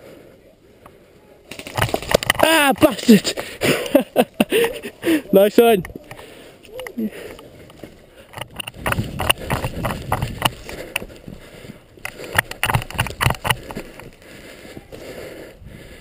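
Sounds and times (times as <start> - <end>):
footsteps on hard ground: 7.2 - 15.0.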